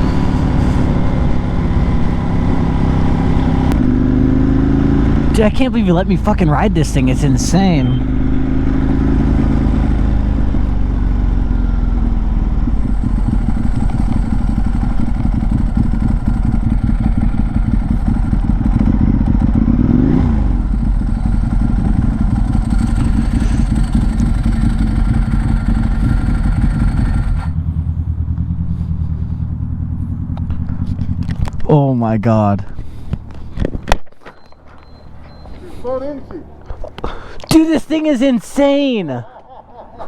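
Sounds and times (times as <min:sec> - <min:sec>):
motorcycle engine revving: 0:00.0 - 0:31.8.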